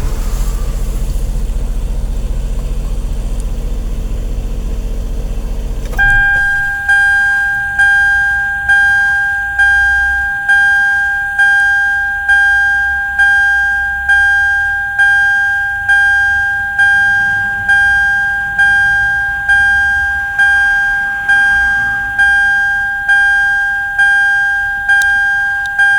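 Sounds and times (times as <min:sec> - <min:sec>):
car engine idling: 0:00.0 - 0:25.9
two-tone warning chime: 0:05.9 - 0:25.9.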